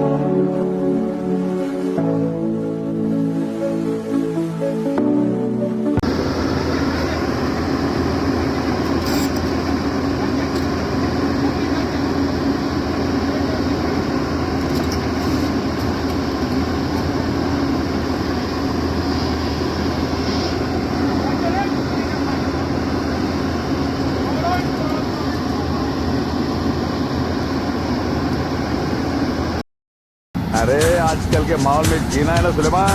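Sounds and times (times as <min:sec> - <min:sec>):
excavator engine humming: 0:06.0 - 0:29.6, 0:30.4 - 0:32.9.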